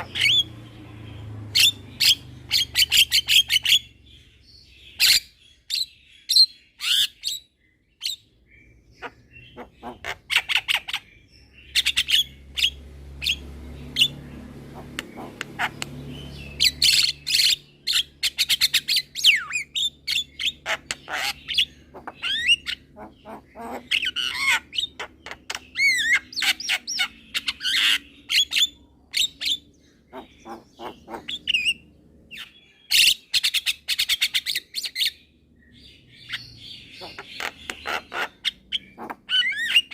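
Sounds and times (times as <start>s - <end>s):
myna calling: 0.0s - 0.6s, 9.0s - 10.9s, 14.0s - 15.9s, 20.6s - 27.1s, 30.1s - 31.8s, 36.3s - 39.9s.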